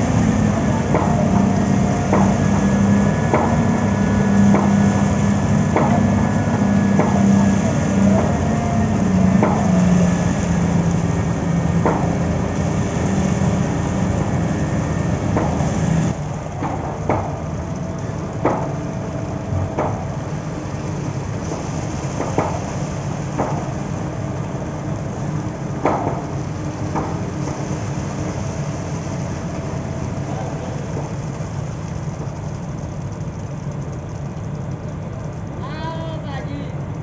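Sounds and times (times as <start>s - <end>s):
heavy construction machinery running: 0.0s - 37.0s
sharp knocks: 0.8s - 8.4s, 9.2s - 10.3s, 11.7s - 12.3s, 15.3s - 15.8s, 19.8s - 20.1s, 21.4s - 22.7s, 25.8s - 27.7s.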